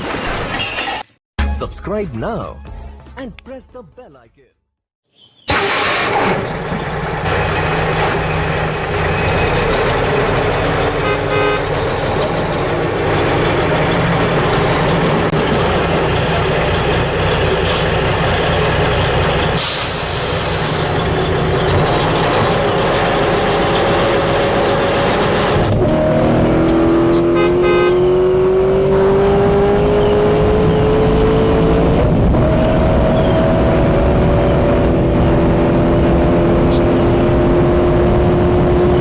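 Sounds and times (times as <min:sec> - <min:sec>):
dump truck engine running: 0:05.5 - 0:25.9.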